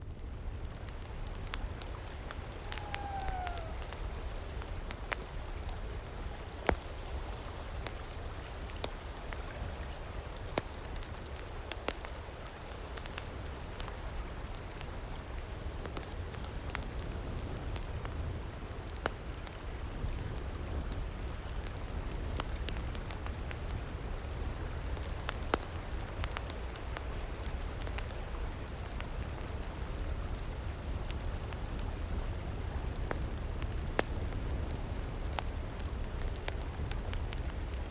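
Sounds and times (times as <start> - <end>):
campfire crackling: 0.0 - 37.9
river rushing: 2.4 - 4.0.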